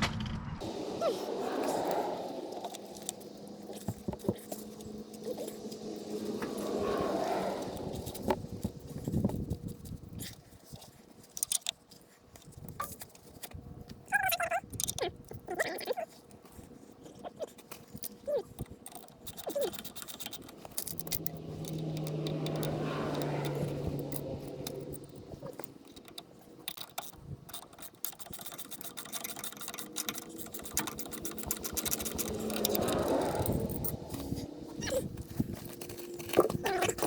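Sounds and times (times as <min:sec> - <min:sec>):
metal tools clinking: 0:17.6 - 0:37.0
motor whirring: 0:18.0 - 0:37.0.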